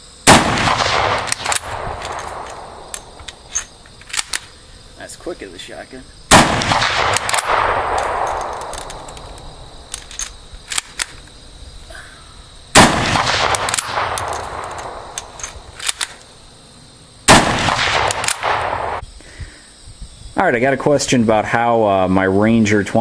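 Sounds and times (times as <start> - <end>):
rifle shots echoing: 0.2 - 4.4, 6.3 - 11.0, 12.7 - 16.0, 17.3 - 19.0
small sharp clicks: 1.0 - 4.5, 6.6 - 11.4, 13.2 - 16.3.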